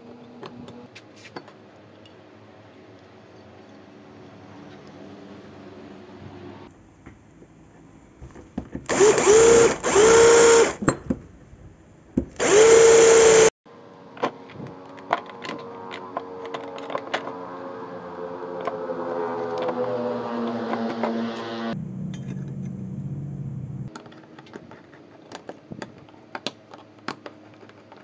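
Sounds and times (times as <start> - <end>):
power tool motor bursts: 8.9 - 10.8, 12.4 - 13.5.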